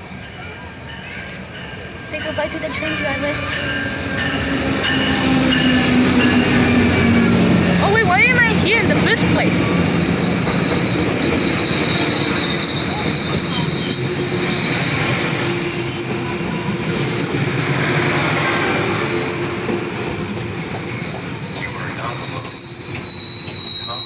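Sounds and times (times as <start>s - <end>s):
train cars rumbling: 0.0s - 24.0s
steel wheel squeal: 8.8s - 17.5s, 18.7s - 24.0s.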